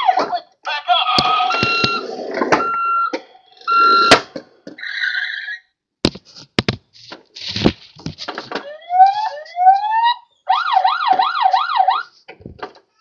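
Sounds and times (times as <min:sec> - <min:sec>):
toy electronic beeping: 0:01.3 - 0:03.1
plastic clicks and knocks: 0:12.3 - 0:12.9.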